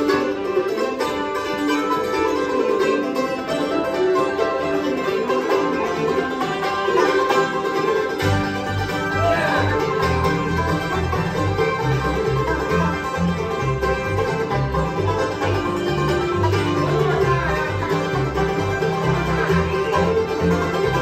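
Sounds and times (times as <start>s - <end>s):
banjo picking: 0.0s - 21.0s
guitar picking: 0.0s - 21.0s
low bass notes: 8.2s - 21.0s.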